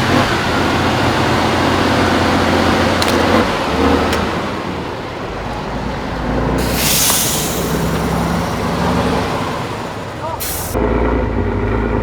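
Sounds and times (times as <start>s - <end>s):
truck engine running under load: 0.0s - 12.0s
air hiss: 6.6s - 8.2s, 10.4s - 10.8s.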